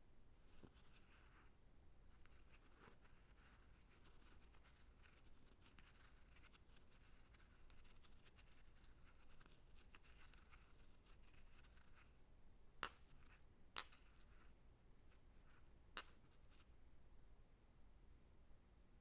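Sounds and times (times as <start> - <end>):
light scratching and tapping: 0.3 - 12.2, 12.8 - 16.7
glass clinks: 12.8 - 13.2, 13.8 - 14.2, 16.0 - 16.4.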